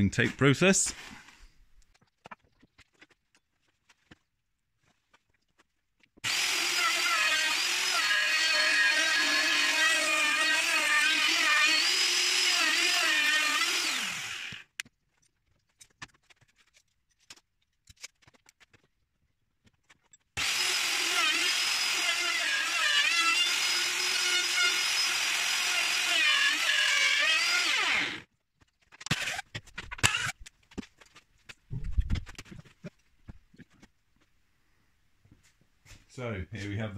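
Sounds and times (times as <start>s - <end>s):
electric router cutting wood: 6.2s - 14.7s, 20.4s - 28.2s.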